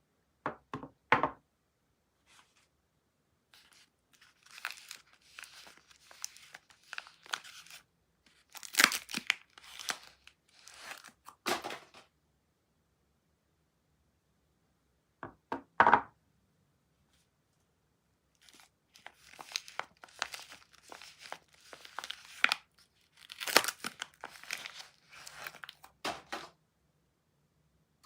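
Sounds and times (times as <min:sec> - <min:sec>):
wrapper crinkling and tearing: 0:03.6 - 0:11.3, 0:18.4 - 0:26.4.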